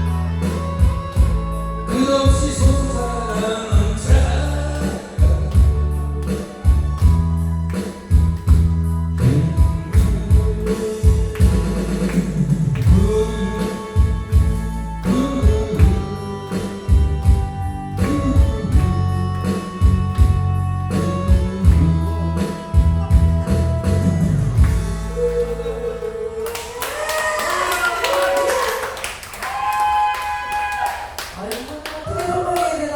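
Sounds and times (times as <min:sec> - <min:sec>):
person singing: 0:00.0 - 0:07.0, 0:09.2 - 0:24.2, 0:24.8 - 0:27.2
bass and guitar: 0:00.0 - 0:26.4.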